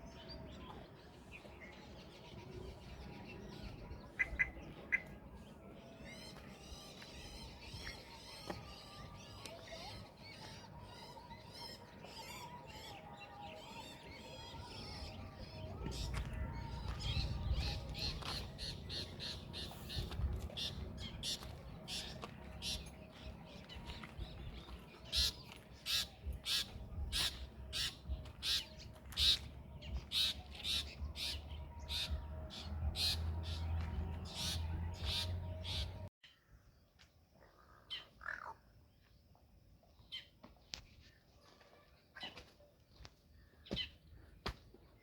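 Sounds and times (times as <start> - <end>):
birds calling: 6.6 - 36.1.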